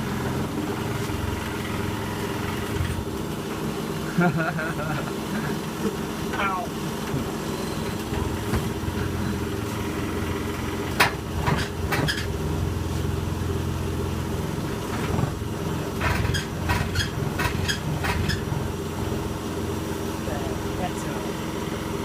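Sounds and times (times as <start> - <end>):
washing machine humming: 0.0 - 22.0
sharp rattling knocks: 10.9 - 12.3, 14.9 - 18.5.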